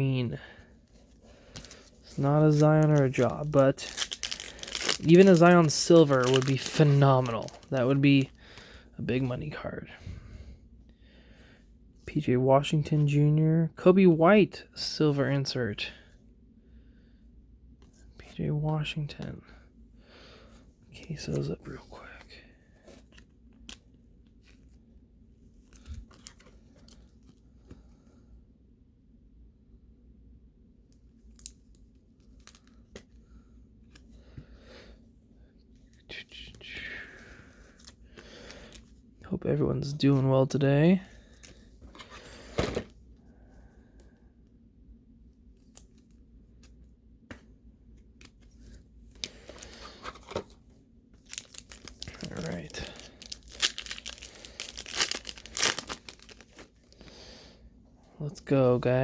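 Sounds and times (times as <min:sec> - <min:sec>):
plastic sleeves rustling and clicking: 0:00.9 - 0:09.3, 0:25.5 - 0:27.4, 0:48.0 - 0:57.2.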